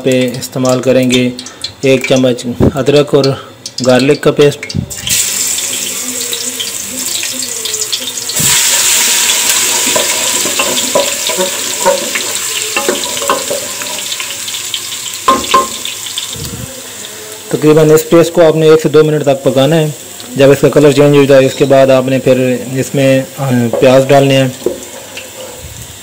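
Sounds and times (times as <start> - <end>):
paste sizzling in hot oil: 4.9 - 26.0
knocks on a pot: 9.8 - 13.8, 15.3 - 15.8.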